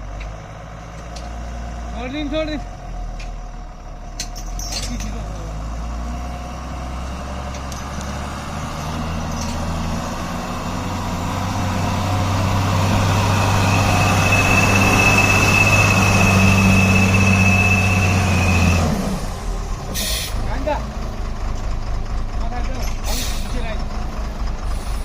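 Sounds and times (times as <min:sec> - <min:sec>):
truck engine running under load: 0:00.0 - 0:25.0
high whistle: 0:13.4 - 0:18.8.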